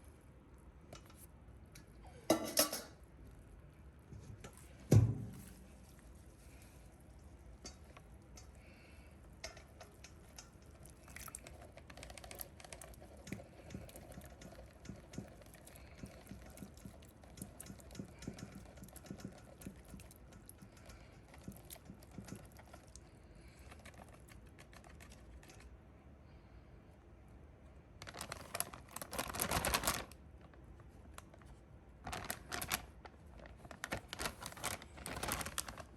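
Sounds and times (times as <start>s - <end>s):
low steady hum: 0.0s - 35.9s
utensil clicks and taps: 9.4s - 23.0s.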